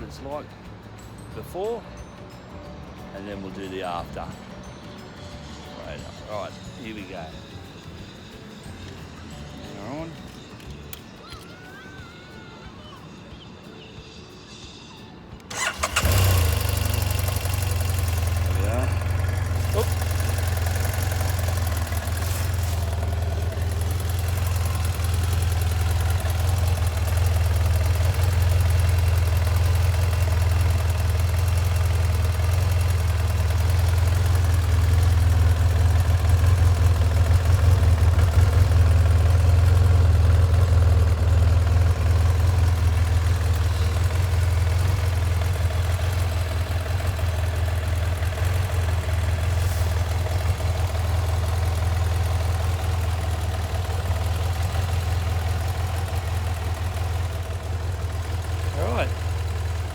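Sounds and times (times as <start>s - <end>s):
motorcycle engine idling: 15.5s - 59.9s.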